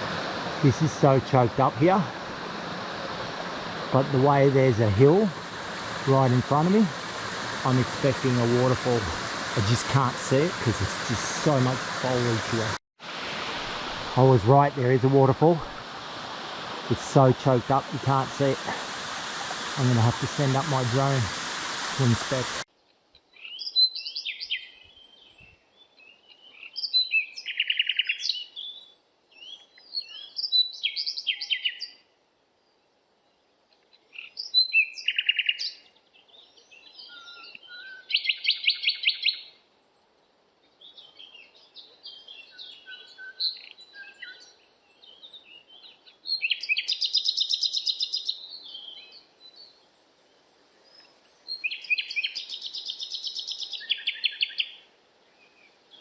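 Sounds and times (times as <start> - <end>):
flowing water hiss: 0.0 - 22.7, 46.5 - 56.0
forest birds calling and singing: 23.2 - 56.0.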